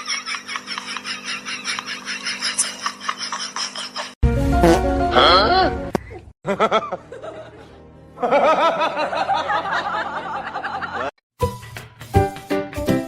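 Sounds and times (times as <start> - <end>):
laughter: 0.0 - 4.2, 6.4 - 11.1
music: 4.2 - 6.0, 7.2 - 13.0.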